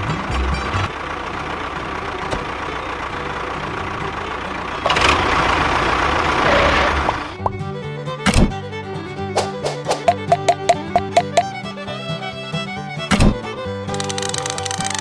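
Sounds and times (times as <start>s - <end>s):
music: 0.0s - 1.0s, 7.4s - 15.0s
small vehicle engine running: 0.0s - 15.0s.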